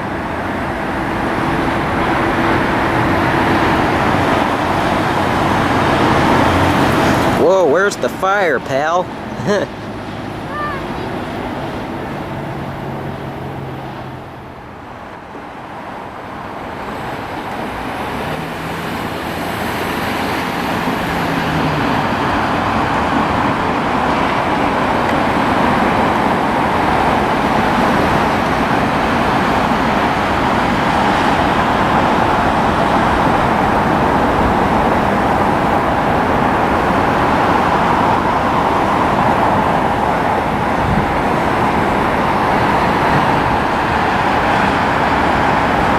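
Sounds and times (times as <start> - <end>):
loud rushing vehicle noise: 0.0 - 45.9.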